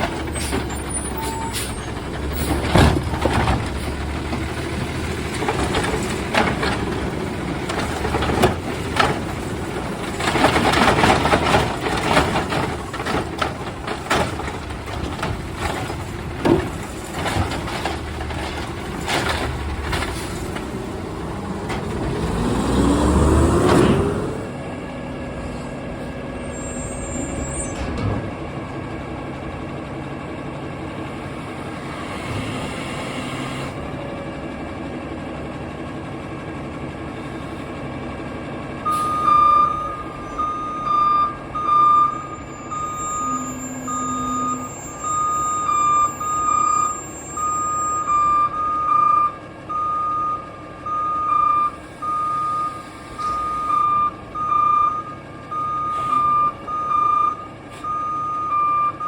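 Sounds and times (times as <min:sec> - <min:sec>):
garbage truck engine running: 0:00.0 - 0:59.0
reversing alarm beeping: 0:38.9 - 0:59.0.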